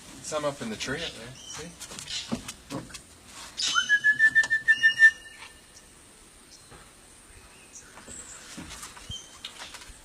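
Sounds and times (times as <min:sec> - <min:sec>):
person whistling a warbling note: 0:03.7 - 0:05.4.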